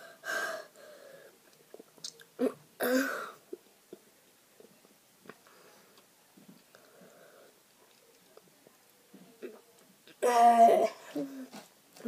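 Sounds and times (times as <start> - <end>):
wet mouth clicks and smacks: 1.7 - 2.3.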